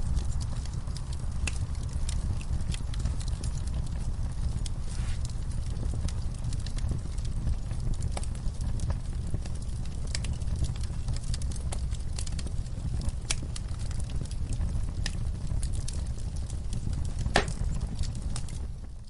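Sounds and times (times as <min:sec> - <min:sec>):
wood fire crackling: 0:00.0 - 0:19.0
sharp pops and snaps: 0:17.1 - 0:18.1.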